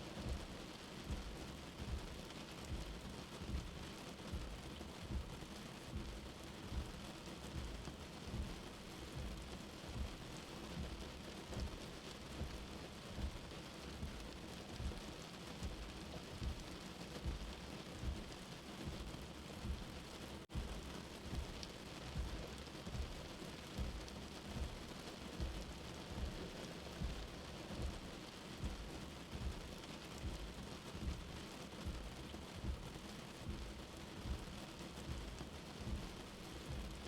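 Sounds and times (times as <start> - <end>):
steady rain: 0.0 - 37.0
soft heartbeat thumps: 0.1 - 37.0.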